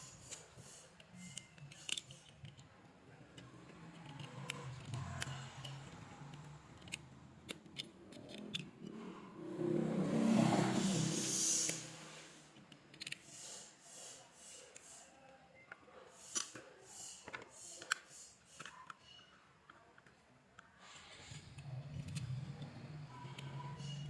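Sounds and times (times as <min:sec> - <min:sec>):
hand tools clicking and snipping: 0:00.0 - 0:02.7, 0:03.4 - 0:09.1, 0:12.6 - 0:13.6.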